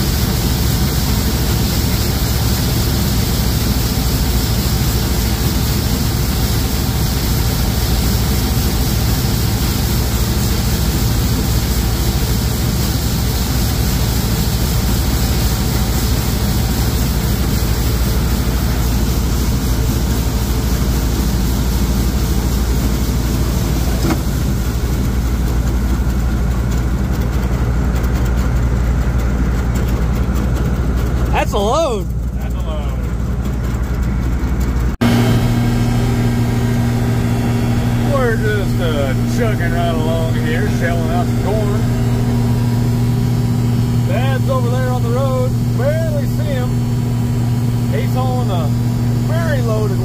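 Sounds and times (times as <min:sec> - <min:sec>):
combine harvester low hum: 0:00.0 - 0:50.0.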